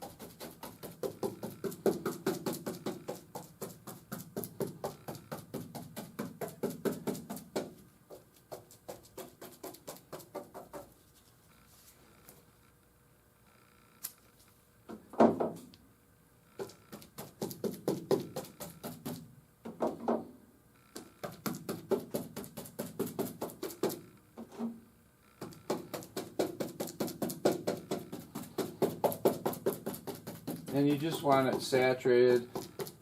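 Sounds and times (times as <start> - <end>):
brush tapping on cloth: 0.0 - 11.0, 16.6 - 19.9, 21.0 - 24.0, 25.4 - 33.0.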